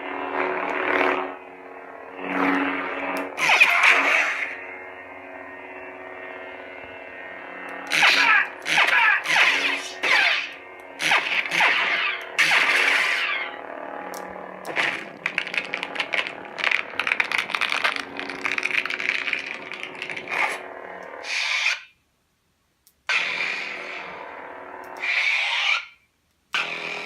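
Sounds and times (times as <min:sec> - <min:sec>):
lightsaber hum: 0:00.0 - 0:22.0, 0:23.1 - 0:27.0
lightsaber crackling: 0:07.6 - 0:22.0, 0:23.1 - 0:26.0.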